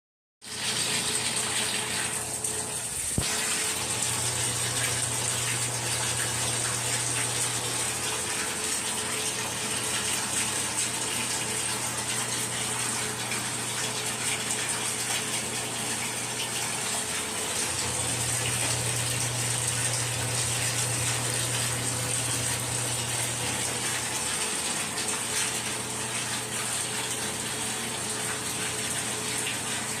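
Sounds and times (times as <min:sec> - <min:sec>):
water running: 0:00.4 - 0:30.0.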